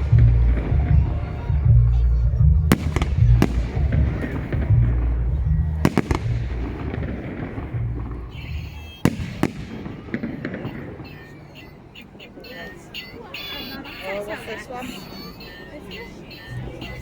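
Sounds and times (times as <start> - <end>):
music with heavy bass: 0.0 - 9.0
fireworks bangs: 2.5 - 14.0.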